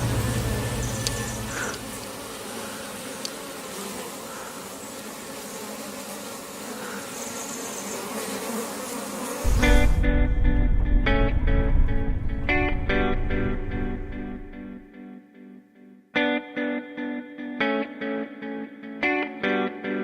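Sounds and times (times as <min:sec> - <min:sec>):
honey bees buzzing: 0:00.0 - 0:10.6.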